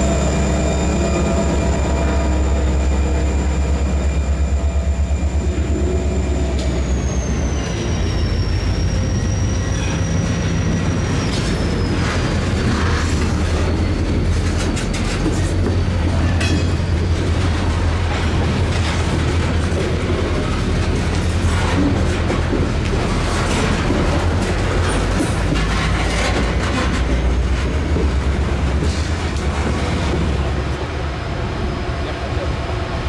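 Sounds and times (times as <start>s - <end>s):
high wheel squeal: 0.0s - 18.2s
train wheels rumbling on rail: 0.0s - 33.0s
wheels clacking over rail joints: 9.6s - 31.0s.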